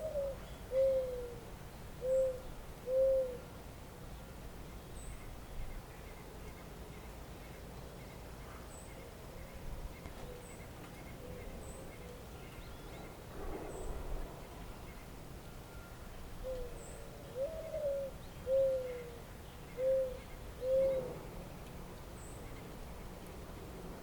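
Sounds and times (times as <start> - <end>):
bird hooting: 0.0 - 1.4, 2.0 - 3.5, 15.8 - 21.3
faint high chirps of small birds: 0.0 - 24.0.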